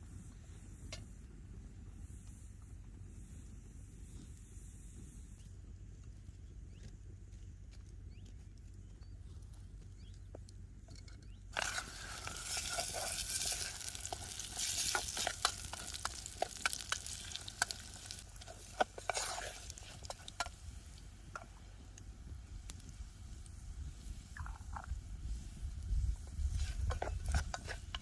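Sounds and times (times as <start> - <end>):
hiss with sharp pops: 0.0 - 5.6, 11.5 - 28.0
food sizzling in a pan: 11.6 - 21.6.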